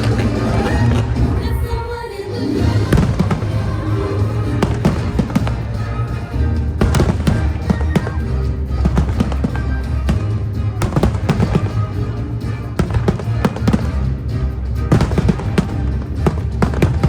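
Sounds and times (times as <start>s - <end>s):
fireworks banging and crackling: 0.0s - 17.0s
music: 0.0s - 17.0s.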